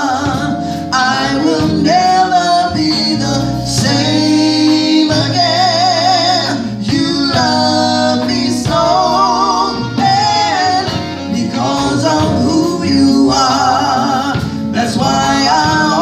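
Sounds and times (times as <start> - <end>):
instrumental accompaniment: 0.0 - 16.0
person singing with vibrato: 0.0 - 16.0.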